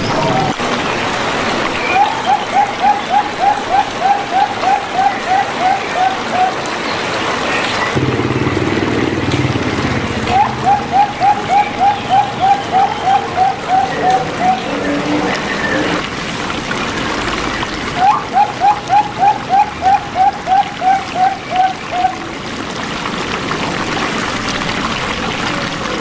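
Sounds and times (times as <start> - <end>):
steady rain-like hiss: 0.0 - 26.0
dove cooing: 1.8 - 6.8, 9.0 - 16.0, 18.0 - 22.4
low drone: 7.7 - 16.1.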